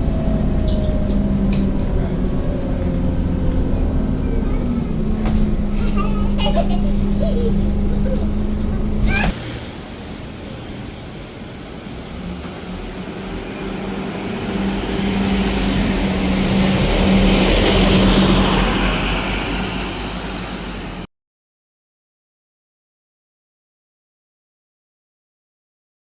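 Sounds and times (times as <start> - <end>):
bus diesel engine droning: 0.0 - 21.1
road noise: 0.0 - 21.1.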